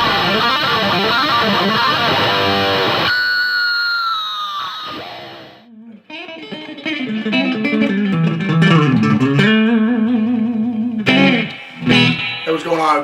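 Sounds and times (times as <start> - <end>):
country guitar lick: 0.0 - 13.0.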